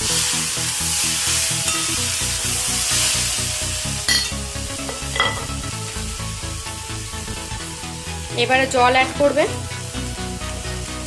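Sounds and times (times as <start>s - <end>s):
background music with steady beat: 0.0s - 11.0s
curry sizzling in a pan: 0.0s - 11.0s
spatula clinking against pan: 4.1s - 5.5s.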